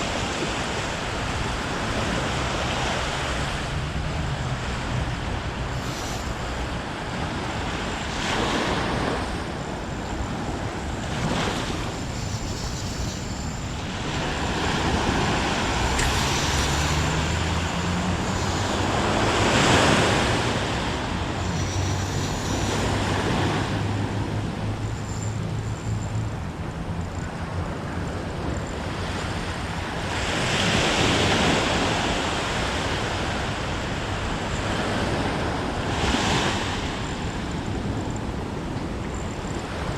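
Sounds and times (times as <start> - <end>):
waves breaking on rocky shore: 0.0 - 24.9
wind buffeting microphone: 0.0 - 39.9.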